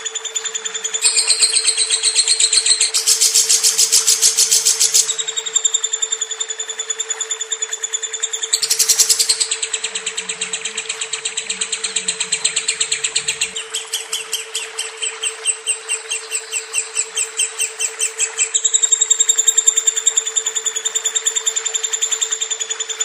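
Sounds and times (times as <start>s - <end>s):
lovebird trilling chirps: 0.3s - 7.1s, 8.0s - 22.9s
steady low hum: 8.2s - 19.6s.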